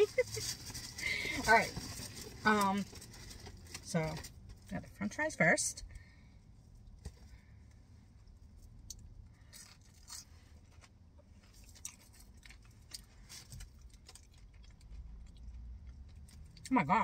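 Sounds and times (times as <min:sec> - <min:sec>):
person chewing crispy fries: 0:08.2 - 0:16.7.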